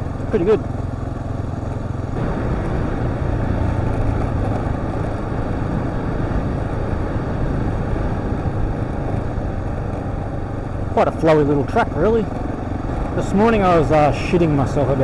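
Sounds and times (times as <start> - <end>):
motorcycle engine running: 0.0 - 15.0
wind and track noise: 0.0 - 15.0.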